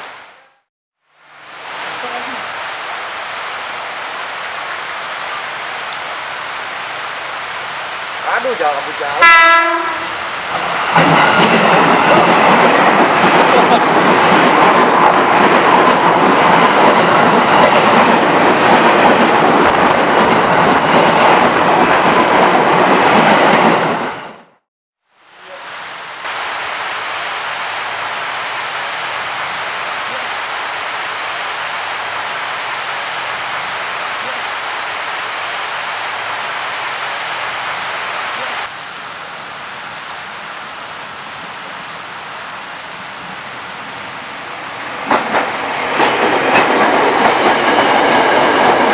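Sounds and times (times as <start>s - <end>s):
heavy rain: 0.0s - 24.2s, 25.1s - 48.9s
electric train running: 9.6s - 24.3s.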